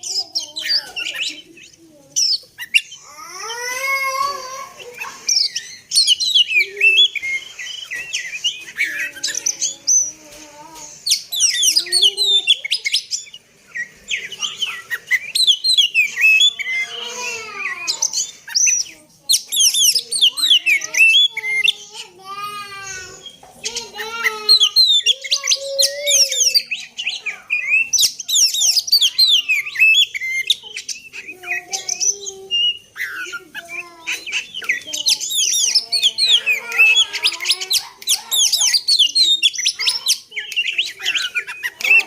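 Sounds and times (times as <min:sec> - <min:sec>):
bird singing chirps and whistles: 0:00.0 - 0:03.1, 0:04.8 - 0:10.2, 0:10.8 - 0:22.1, 0:22.8 - 0:42.0.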